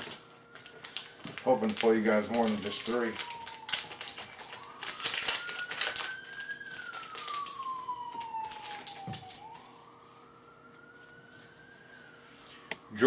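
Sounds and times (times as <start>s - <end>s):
card pack being torn open: 0.0s - 9.6s
siren wailing: 0.0s - 13.0s.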